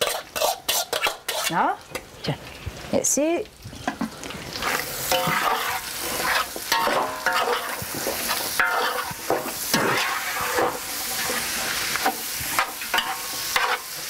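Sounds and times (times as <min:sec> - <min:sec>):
spoon scraping a pot: 0:00.0 - 0:01.6, 0:05.1 - 0:14.0
onions sizzling in a pot: 0:00.0 - 0:14.0.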